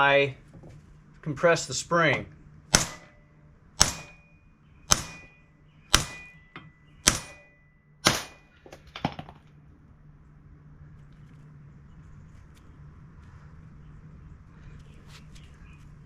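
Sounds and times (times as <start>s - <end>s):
hammer striking metal pin: 2.7s - 3.2s, 3.8s - 9.3s.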